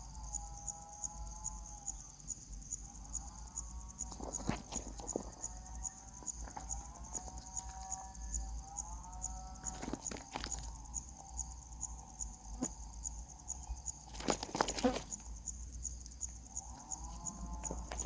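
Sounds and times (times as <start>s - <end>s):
insect chirping: 0.0s - 18.0s
rustling or scrambling: 4.1s - 5.6s, 9.6s - 10.7s, 14.1s - 15.4s.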